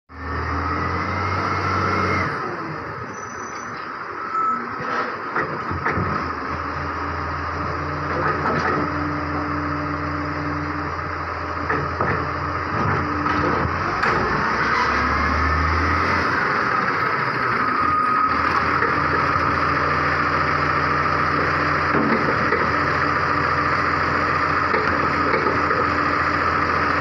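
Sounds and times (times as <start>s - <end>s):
garbage truck diesel engine: 0.1s - 27.0s
metal clanks and knocks: 8.1s - 9.0s, 21.9s - 22.8s.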